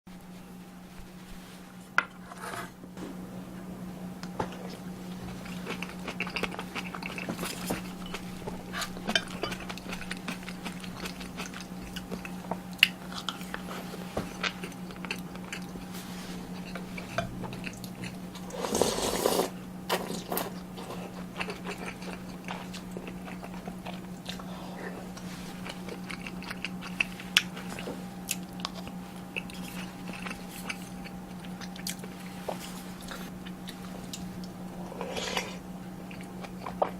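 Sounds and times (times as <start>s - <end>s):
low hum: 0.1s - 18.8s
chewing and biting: 4.6s - 15.9s, 20.1s - 36.9s.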